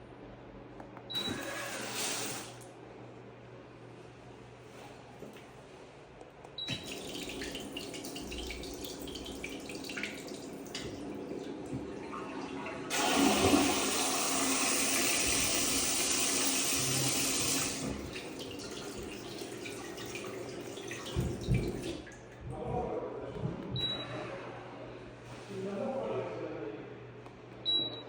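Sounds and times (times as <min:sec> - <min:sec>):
toilet flushing: 0:01.1 - 0:02.7, 0:06.6 - 0:22.4
water running: 0:01.2 - 0:02.7, 0:06.6 - 0:22.4.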